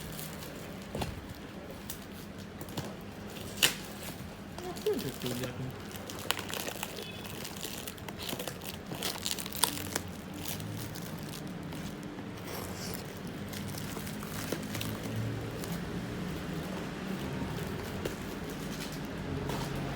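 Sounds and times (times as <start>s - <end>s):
packaging crinkling and rustling: 1.7s - 15.8s.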